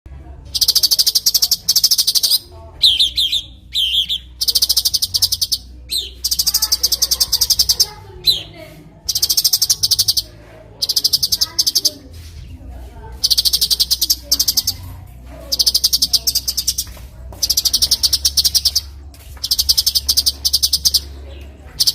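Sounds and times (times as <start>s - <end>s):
songbird rattling trills: 0.5s - 12.4s, 13.1s - 21.2s.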